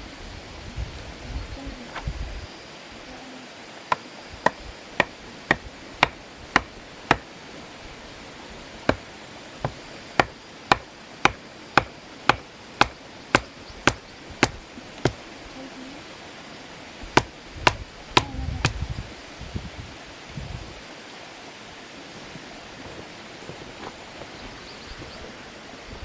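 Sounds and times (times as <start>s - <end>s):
wood chopping strikes: 3.9s - 7.3s, 8.8s - 15.2s, 17.2s - 18.8s.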